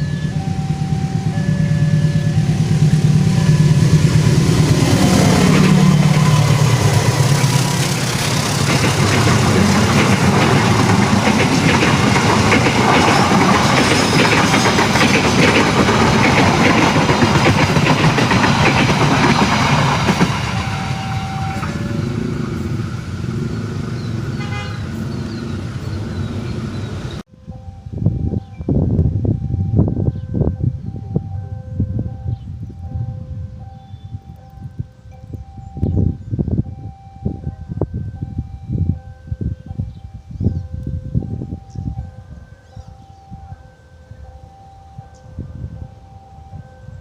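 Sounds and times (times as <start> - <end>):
train wheels clattering on rails: 0.0 - 27.2
diesel locomotive engine: 0.0 - 47.0.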